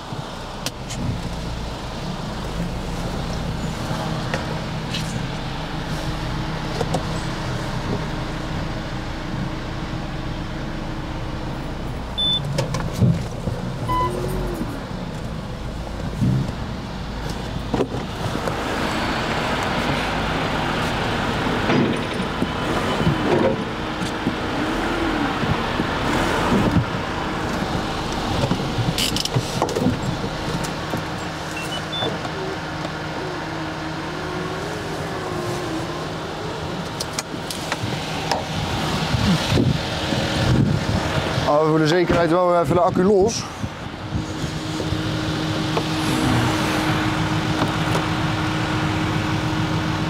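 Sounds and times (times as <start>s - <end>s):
vehicle engine idling: 0.0s - 50.0s.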